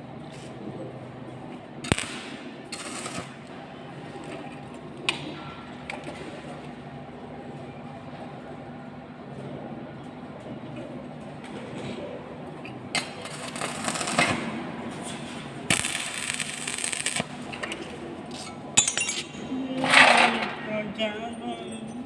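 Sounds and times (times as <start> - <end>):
arc welding crackling hiss: 1.9 - 3.4, 13.0 - 14.5, 15.7 - 17.5
metallic clicks and clinks: 18.3 - 20.3.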